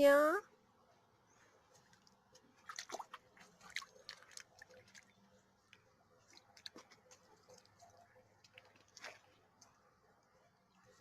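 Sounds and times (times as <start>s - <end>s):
goose splashing in puddle: 1.7s - 10.0s.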